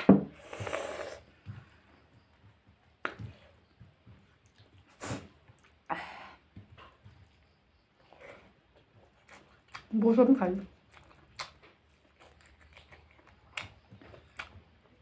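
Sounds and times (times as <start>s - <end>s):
wet chewing and lip smacks: 2.4s - 5.9s, 6.6s - 15.0s.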